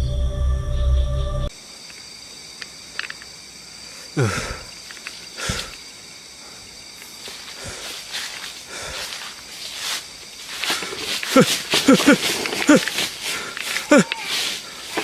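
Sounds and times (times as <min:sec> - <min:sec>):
crickets chirring: 0:00.0 - 0:15.0
faint clicks: 0:01.9 - 0:03.3, 0:04.7 - 0:05.8.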